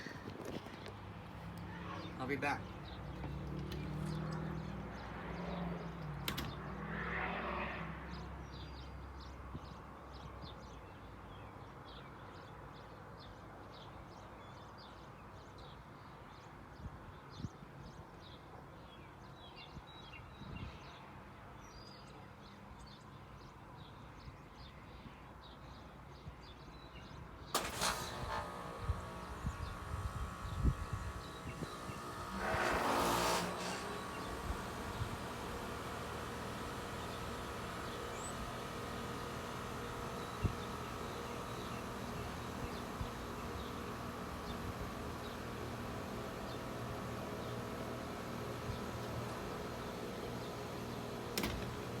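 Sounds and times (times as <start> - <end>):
small birds chirping: 0.0 - 6.8, 28.0 - 52.0
low engine-like hum: 1.2 - 9.3, 27.6 - 52.0.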